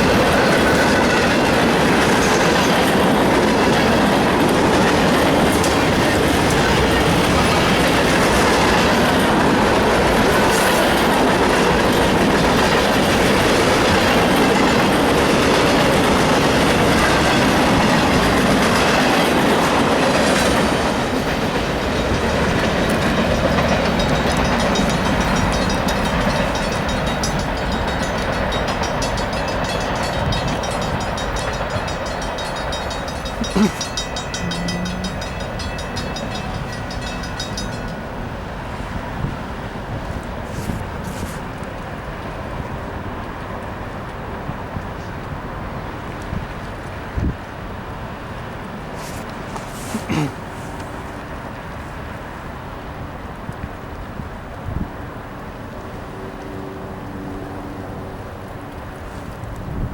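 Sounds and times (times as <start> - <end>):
train wheels clattering over rails: 0.0 - 47.6.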